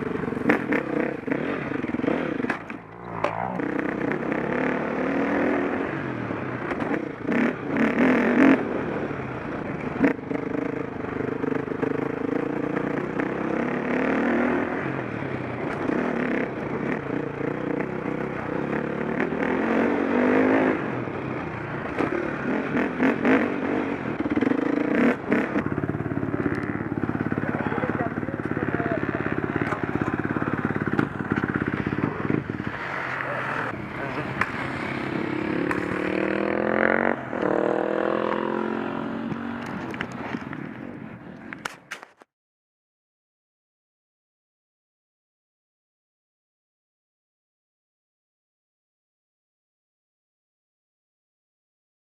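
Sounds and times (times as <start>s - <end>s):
motocross bike engine revving: 0.0s - 6.0s, 11.4s - 14.8s, 21.7s - 39.8s.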